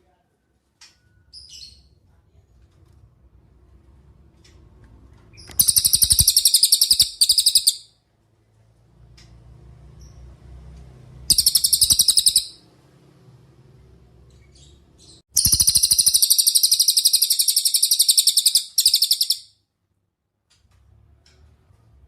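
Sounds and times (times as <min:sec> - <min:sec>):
songbird singing rapid trills: 0:05.5 - 0:07.8, 0:11.3 - 0:12.6, 0:15.4 - 0:19.5.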